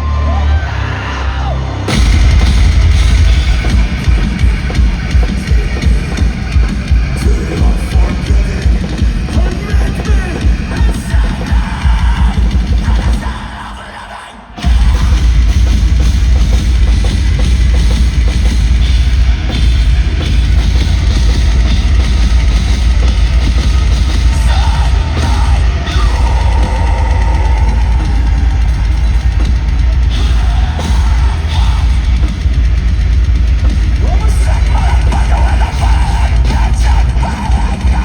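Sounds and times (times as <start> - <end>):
distorted guitars: 0.0 - 38.0
heavy drums: 0.0 - 38.0
metalcore band playing live: 0.0 - 38.0.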